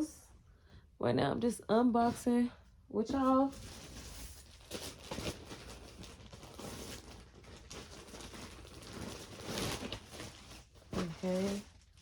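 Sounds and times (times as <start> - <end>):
plastic packaging rustling: 3.2 - 12.0.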